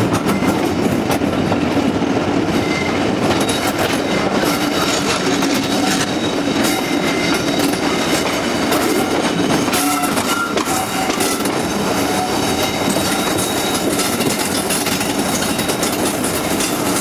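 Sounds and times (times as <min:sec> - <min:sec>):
train wheels rumbling on rail: 0:00.0 - 0:17.0
faint high wheel squeals: 0:09.6 - 0:14.3.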